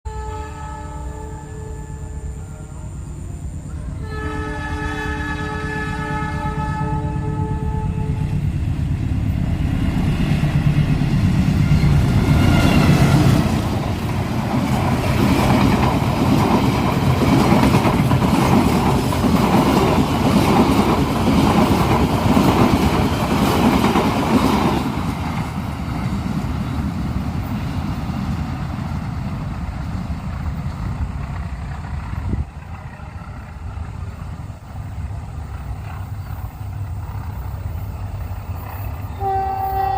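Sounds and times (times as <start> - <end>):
passenger train passing: 0.1 - 39.9.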